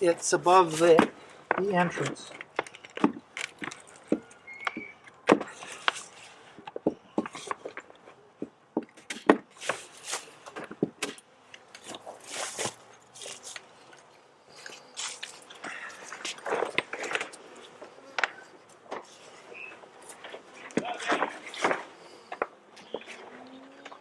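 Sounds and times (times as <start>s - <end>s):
tar paper crackling: 0.0s - 6.4s.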